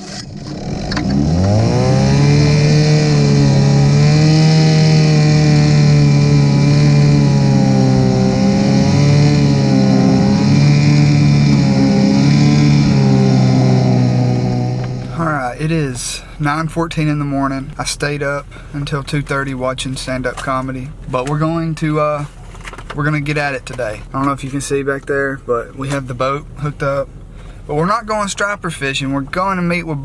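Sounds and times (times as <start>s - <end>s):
engine revving: 0.0s - 15.6s.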